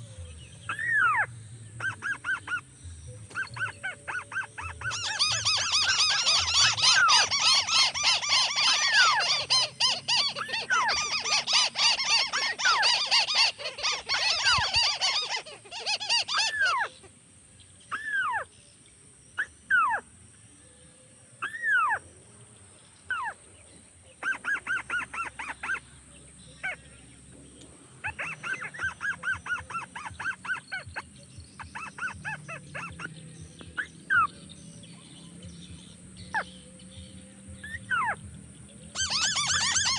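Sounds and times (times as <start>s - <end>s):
crake calls: 0.0s - 17.2s, 38.9s - 39.9s.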